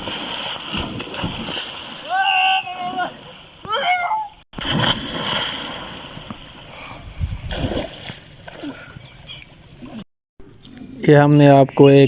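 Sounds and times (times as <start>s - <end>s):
churning water: 0.0s - 10.7s
faint shouts: 2.0s - 4.4s
large splash into water: 4.6s - 6.5s.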